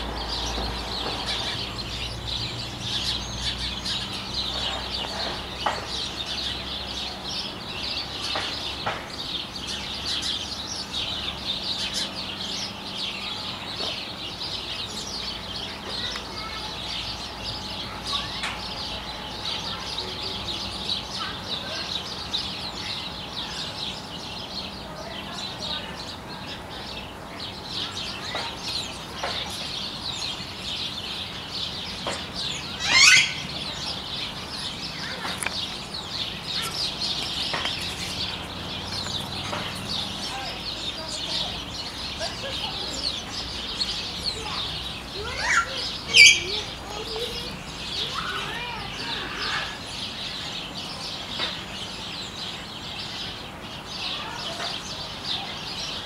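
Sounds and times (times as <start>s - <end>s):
small birds chirping: 0.0s - 56.0s
loud sweeping bird call: 26.0s - 56.0s.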